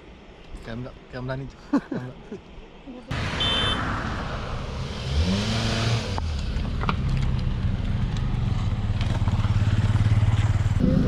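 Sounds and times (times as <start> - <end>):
road noise: 0.0 - 11.0
car engine pulling away: 3.2 - 11.0.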